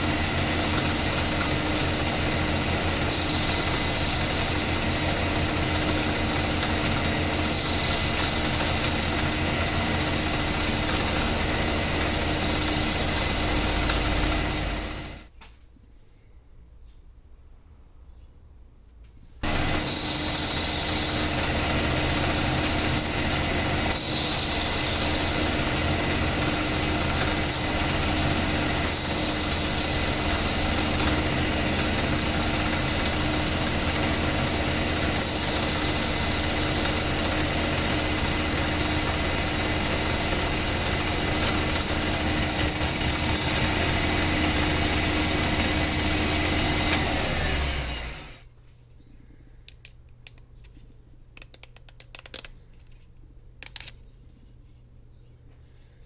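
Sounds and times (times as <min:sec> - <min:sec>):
abrasive sanding hiss: 0:00.0 - 0:14.9, 0:19.4 - 0:47.6
electric power tool running: 0:00.0 - 0:15.3, 0:19.4 - 0:48.5
quick run of clicks: 0:28.9 - 0:47.2.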